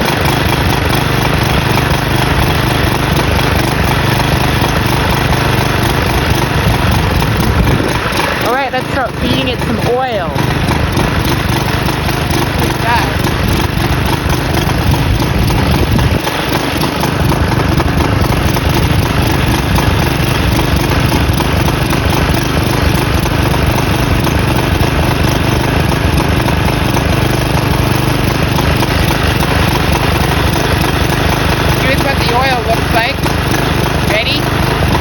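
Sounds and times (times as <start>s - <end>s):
lawn mower engine running: 0.0s - 35.0s.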